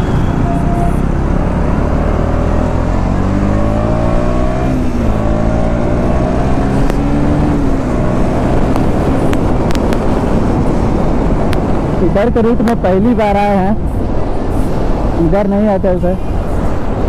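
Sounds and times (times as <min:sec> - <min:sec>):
motorcycle engine accelerating: 0:00.0 - 0:12.0
wind on microphone: 0:04.2 - 0:17.0.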